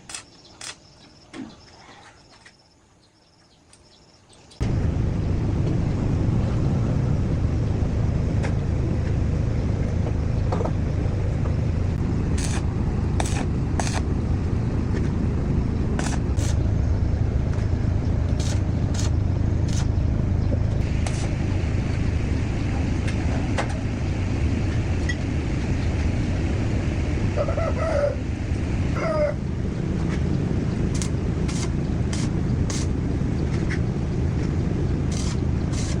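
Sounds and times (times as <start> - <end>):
sharp metallic clicks: 0.0 - 0.9
tractor engine rumbling: 4.6 - 36.0.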